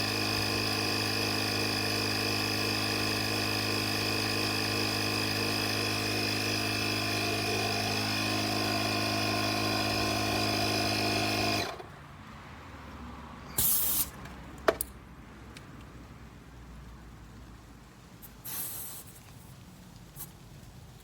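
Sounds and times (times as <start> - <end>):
air compressor motor humming: 0.0 - 11.8
air hissing: 13.5 - 14.2, 18.4 - 19.2.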